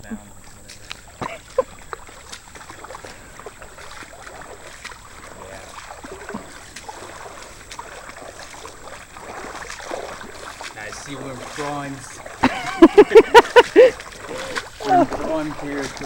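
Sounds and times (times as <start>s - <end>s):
floodwater sloshing and splashing: 0.0s - 16.0s
steady watery rush: 0.0s - 16.0s
small splashes and clicks: 0.3s - 16.0s.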